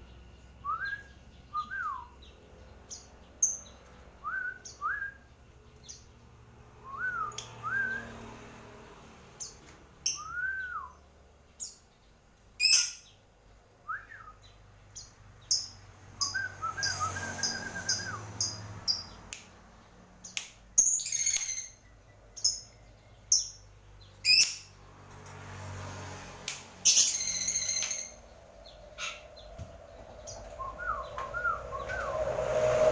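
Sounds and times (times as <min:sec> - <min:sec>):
bird chirping and squeaking: 0:12.6 - 0:13.2, 0:20.8 - 0:21.8, 0:24.2 - 0:24.7, 0:26.8 - 0:31.2.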